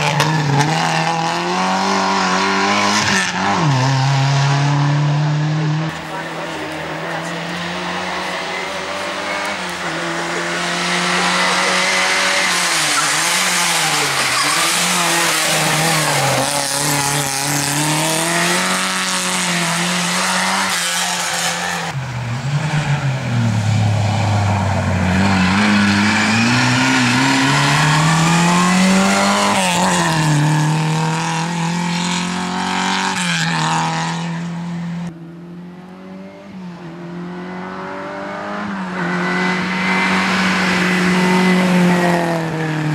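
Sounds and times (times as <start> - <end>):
rally car engine revving: 0.0 - 42.9
tyre and road noise: 0.0 - 42.9.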